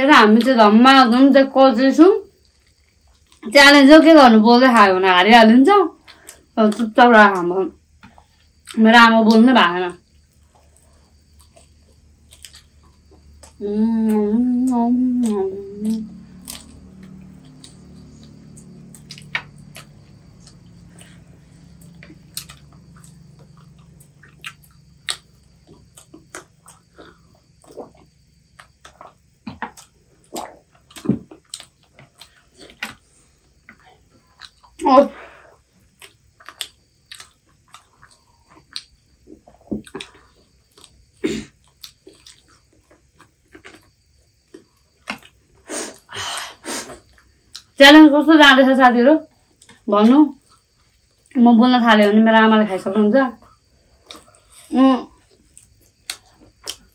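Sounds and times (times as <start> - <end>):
people chewing crispy chicken: 2.3 - 3.5, 6.0 - 6.9, 10.0 - 47.8, 49.3 - 51.4, 53.4 - 56.9.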